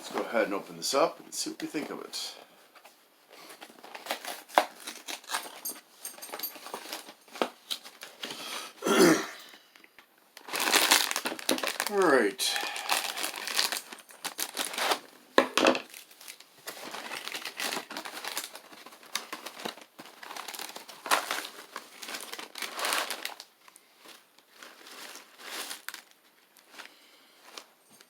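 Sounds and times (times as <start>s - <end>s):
plastic bag crinkling: 3.4s - 8.3s, 9.6s - 28.0s
plastic bag snapping: 9.9s - 12.0s, 12.7s - 16.4s.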